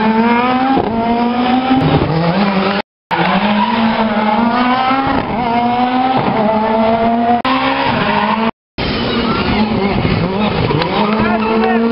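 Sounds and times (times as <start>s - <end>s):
rally car engine revving: 0.0s - 11.9s.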